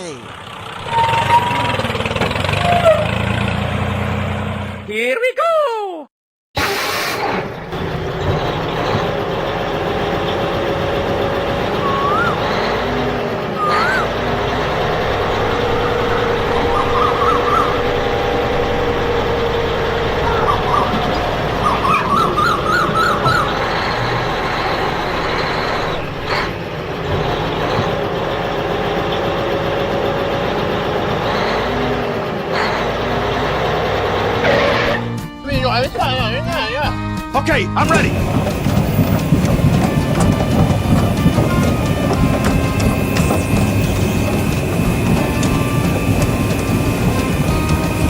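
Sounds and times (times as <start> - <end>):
vehicle engine running: 7.6 - 36.9, 37.6 - 48.0
whistle-like chirp: 11.8 - 12.7, 13.6 - 14.1.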